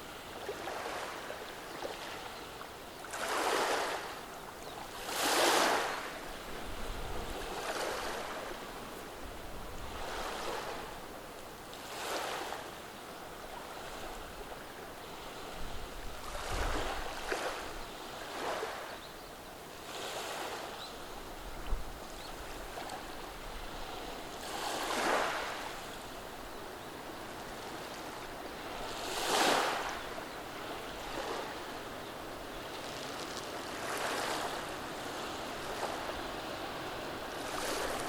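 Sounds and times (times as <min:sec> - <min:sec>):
waves washing on pebble beach: 0:05.0 - 0:06.2, 0:23.7 - 0:26.1, 0:27.3 - 0:38.0.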